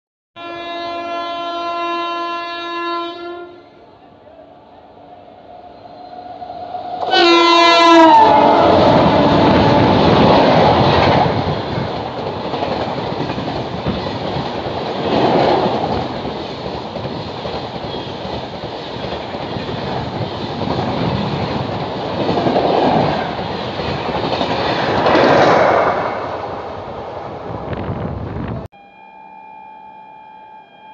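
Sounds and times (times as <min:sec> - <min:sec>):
train wheels rushing on rail: 0:05.1 - 0:28.6.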